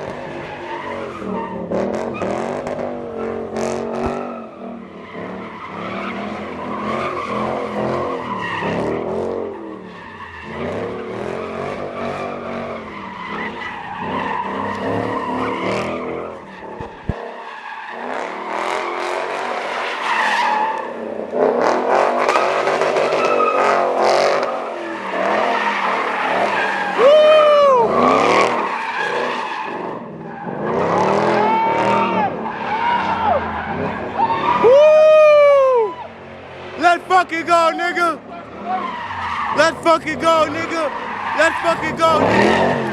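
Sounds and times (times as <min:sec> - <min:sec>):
car engines revving: 0:00.0 - 0:42.9
tyres squealing: 0:36.8 - 0:42.9.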